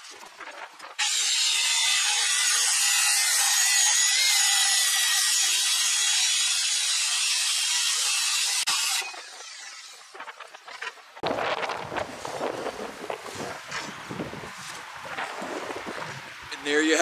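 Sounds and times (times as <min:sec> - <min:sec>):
circular saw cutting board: 0:01.0 - 0:11.1.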